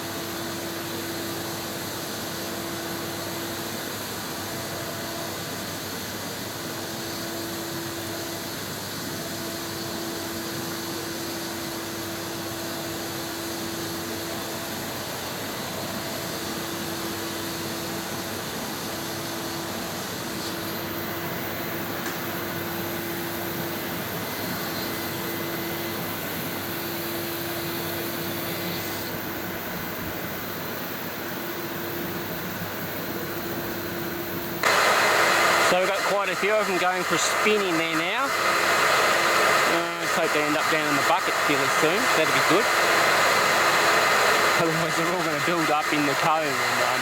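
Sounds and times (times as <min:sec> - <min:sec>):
vacuum humming: 0:34.6 - 0:47.0.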